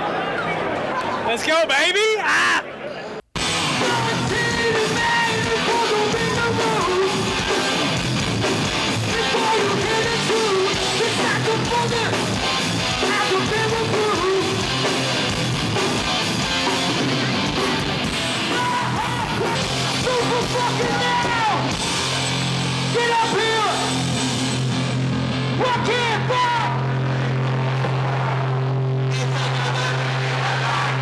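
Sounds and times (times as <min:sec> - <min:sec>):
distorted electric guitars: 0:03.4 - 0:31.0
drums: 0:03.4 - 0:31.0
person yelling vocals: 0:03.8 - 0:07.3, 0:09.1 - 0:12.2, 0:18.4 - 0:21.7.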